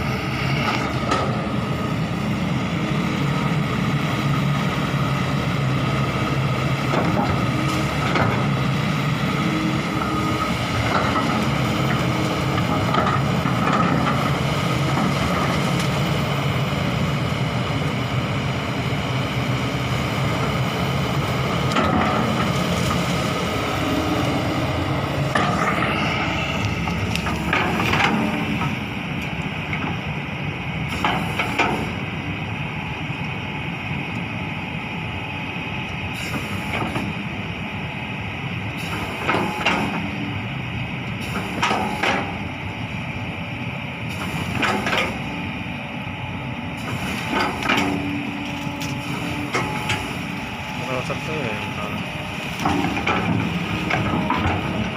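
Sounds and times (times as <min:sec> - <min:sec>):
excavator diesel engine running: 0:00.0 - 0:54.9
rising whine: 0:14.7 - 0:30.2.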